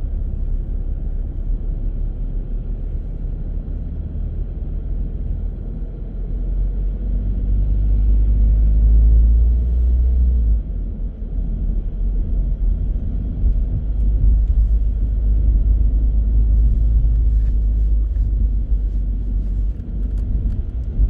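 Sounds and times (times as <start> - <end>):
car engine rumble: 0.0 - 21.0
road noise: 0.0 - 21.0.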